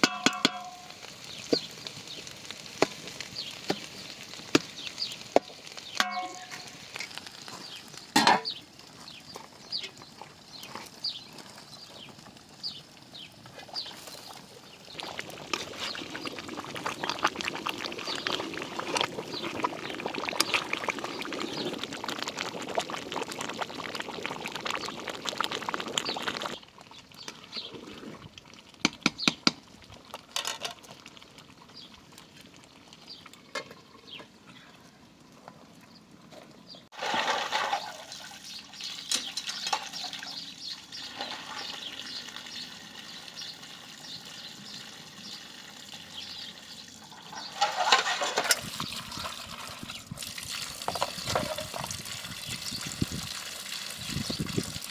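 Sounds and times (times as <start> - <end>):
water pouring and splashing: 0.0 - 33.6, 36.9 - 54.9.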